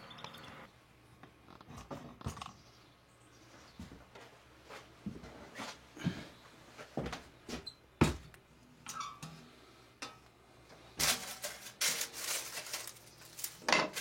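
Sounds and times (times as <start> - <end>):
baking paper crinkling: 11.0 - 14.0.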